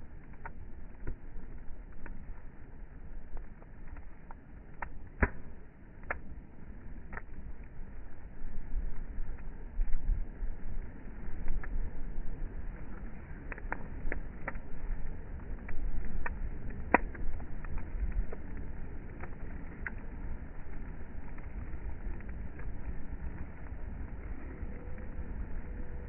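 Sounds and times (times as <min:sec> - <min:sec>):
bonfire crackling: 0:00.0 - 0:26.0
low rumble: 0:05.3 - 0:26.0.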